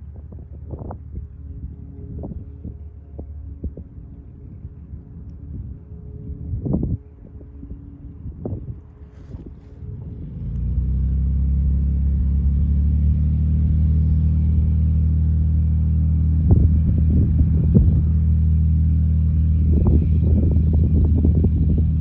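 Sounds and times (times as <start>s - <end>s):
wind buffeting microphone: 0.0s - 12.4s, 15.6s - 22.0s
aircraft engine and propeller drone: 0.0s - 22.0s.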